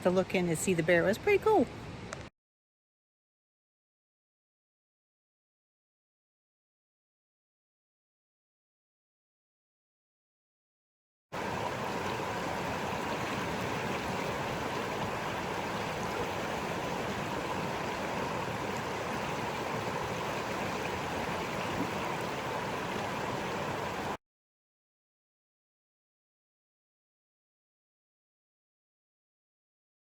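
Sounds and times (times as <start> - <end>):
creek water flowing: 11.4 - 24.2.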